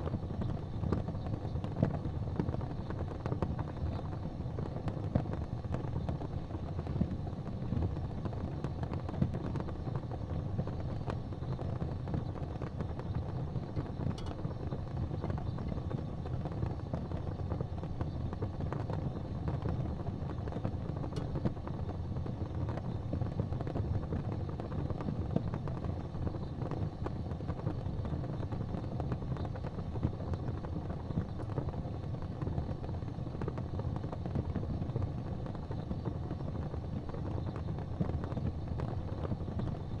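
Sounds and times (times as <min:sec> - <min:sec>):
sharp fire pops: 0:00.0 - 0:40.0
wood fire crackling: 0:00.0 - 0:40.0.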